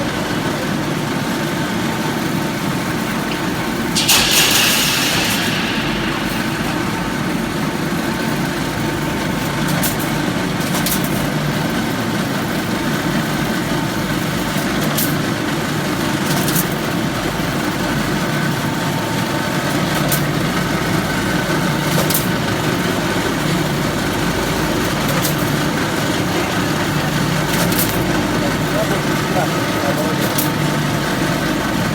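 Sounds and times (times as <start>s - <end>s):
machine humming: 3.5s - 10.0s.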